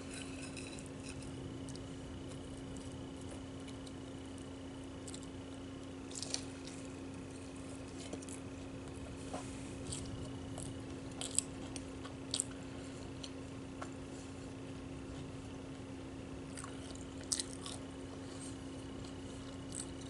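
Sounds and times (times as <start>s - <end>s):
steady low hum: 0.0s - 20.0s
person chewing: 6.1s - 6.9s, 7.8s - 13.4s, 16.5s - 20.0s.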